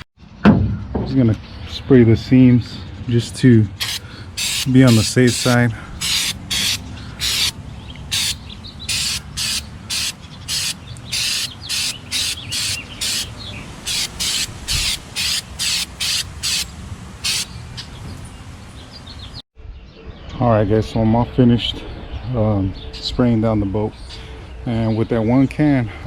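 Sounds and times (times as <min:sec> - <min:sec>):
aerosol can spraying in hissing bursts: 0:03.8 - 0:07.5, 0:08.1 - 0:17.5.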